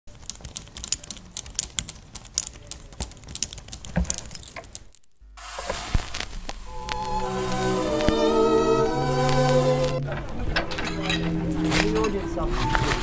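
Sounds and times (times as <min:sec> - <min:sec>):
steady hiss: 0:05.2 - 0:10.2.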